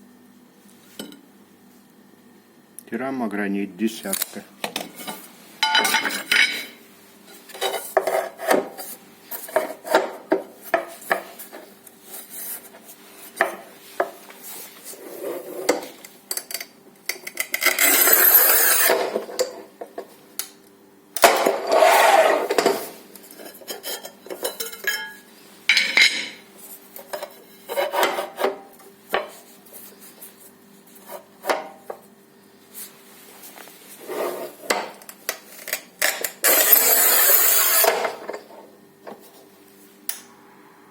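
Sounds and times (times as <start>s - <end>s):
tile cutter rasping scrape: 17.6s - 19.1s, 21.5s - 22.9s, 27.7s - 28.5s, 36.4s - 38.2s.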